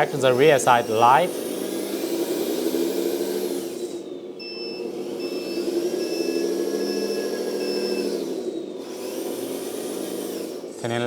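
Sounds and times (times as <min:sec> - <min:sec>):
engine drone: 0:00.0 - 0:11.0
reversing beeper: 0:04.4 - 0:08.5.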